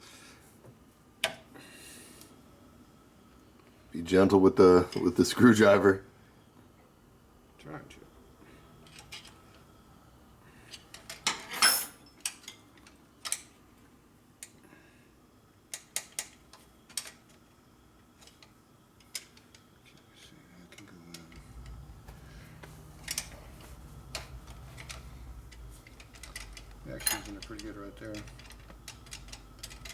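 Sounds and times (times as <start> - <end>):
low steady hum: 16.9 - 29.9.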